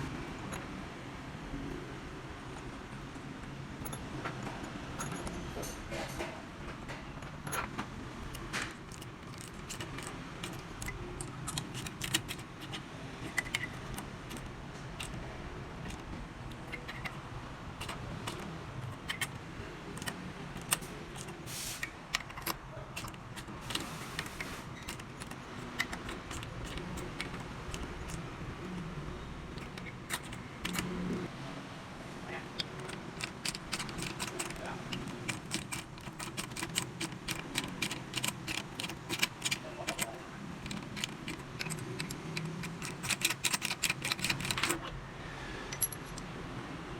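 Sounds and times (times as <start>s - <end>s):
metal tools clinking: 3.8s - 6.4s, 32.6s - 44.8s, 45.7s - 46.2s.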